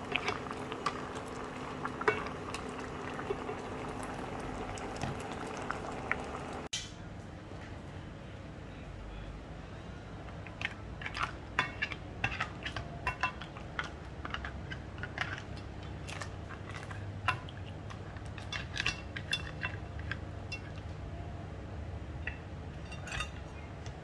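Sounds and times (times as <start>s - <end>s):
low steady hum: 0.0s - 24.0s
metal utensil clinking on cookware: 11.0s - 15.4s, 18.2s - 20.9s, 22.2s - 23.6s.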